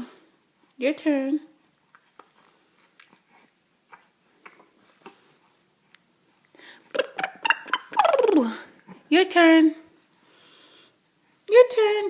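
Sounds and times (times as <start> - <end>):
person vocalizing: 6.9 - 8.7.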